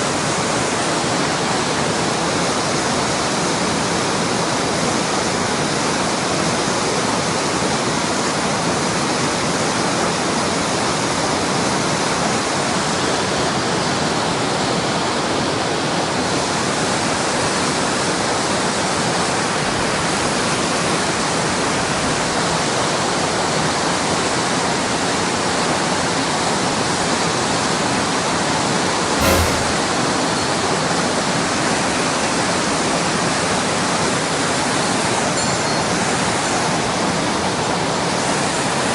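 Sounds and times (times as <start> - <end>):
short knock: 29.2 - 29.8.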